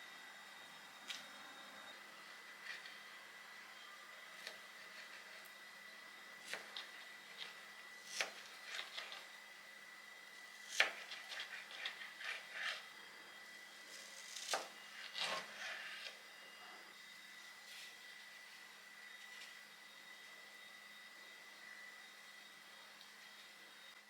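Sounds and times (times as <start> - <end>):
faint high-pitched tone: 0.0 - 6.3.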